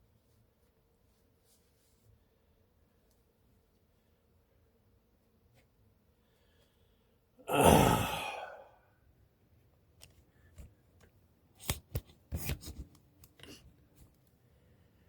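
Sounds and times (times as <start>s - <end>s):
man sighing: 7.5s - 8.8s.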